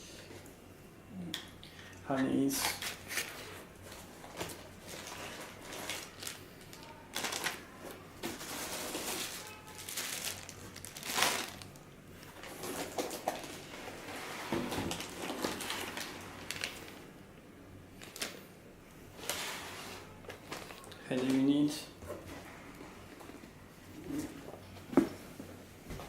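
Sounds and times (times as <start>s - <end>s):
packaging rustling and crinkling: 2.5s - 17.0s, 18.0s - 18.4s, 19.2s - 21.7s.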